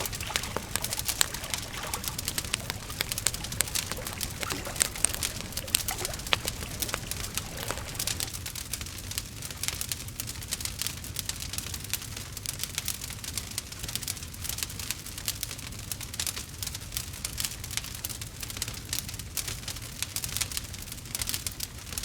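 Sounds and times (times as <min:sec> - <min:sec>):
campfire crackling: 0:00.0 - 0:08.4.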